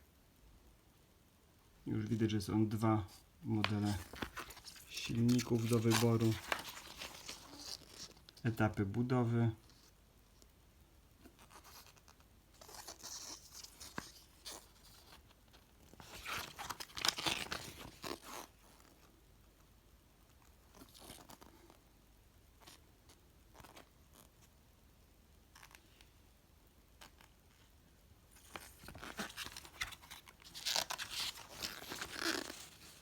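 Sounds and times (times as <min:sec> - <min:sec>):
paper pages rustling: 0:03.4 - 0:08.5, 0:12.6 - 0:15.2, 0:15.8 - 0:18.9, 0:28.4 - 0:33.0.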